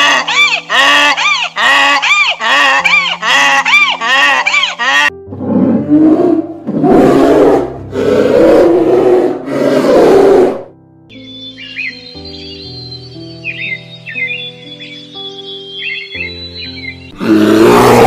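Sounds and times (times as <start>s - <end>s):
bear growling: 5.2s - 10.7s, 17.2s - 18.0s.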